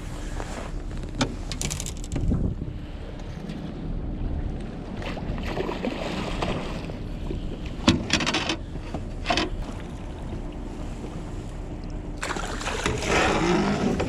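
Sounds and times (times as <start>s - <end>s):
water noise: 0.0s - 14.0s
wind: 0.0s - 14.0s
water splashes: 4.9s - 7.0s, 12.2s - 14.0s.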